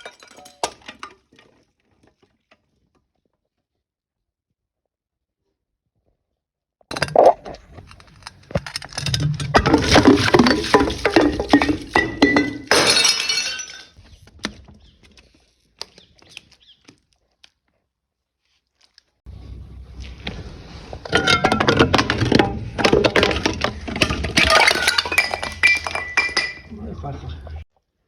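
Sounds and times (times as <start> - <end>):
glass bottle breaking: 0.0 - 1.2, 9.0 - 14.0, 21.1 - 26.7
glass shards crunching and clinking: 8.1 - 14.0, 24.0 - 26.7.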